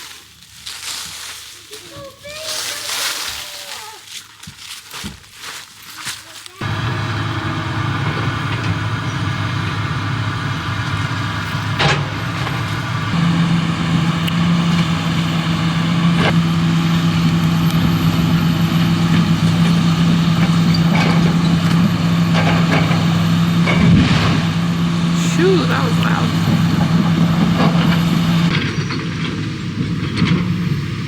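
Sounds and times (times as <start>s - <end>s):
tractor engine running under load: 6.6s - 31.0s.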